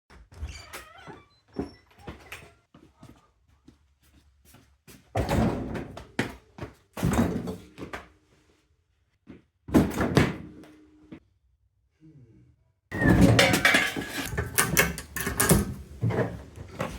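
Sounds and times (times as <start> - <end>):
loud bangs and scrapes: 12.9 - 16.4.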